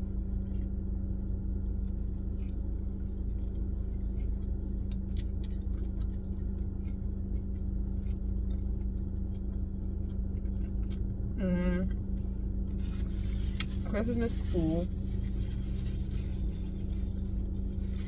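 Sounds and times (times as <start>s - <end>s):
person chewing fries: 0.0s - 13.9s, 14.9s - 18.0s
car cabin hum: 10.4s - 18.0s.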